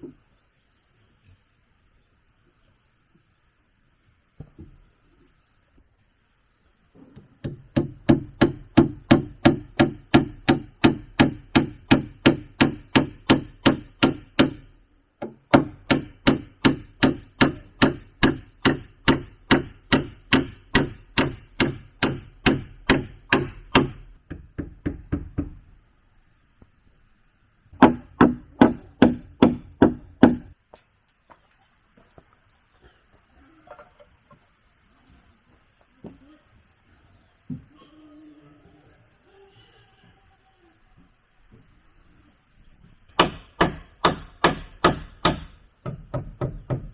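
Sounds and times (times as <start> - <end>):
tool striking wood: 7.2 - 25.6, 27.8 - 30.5, 43.1 - 46.9.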